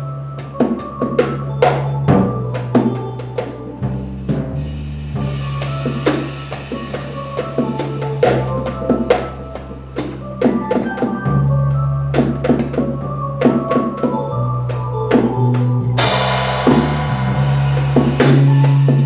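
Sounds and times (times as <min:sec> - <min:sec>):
jazz drum kit: 0:00.0 - 0:19.0
low organ bass notes: 0:00.0 - 0:19.0
cymbal crash: 0:16.0 - 0:19.0.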